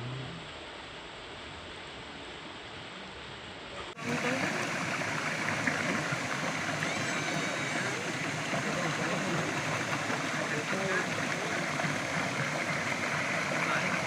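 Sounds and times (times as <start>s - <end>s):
faint voices: 3.8s - 14.0s
waterfall rushing: 3.9s - 14.0s.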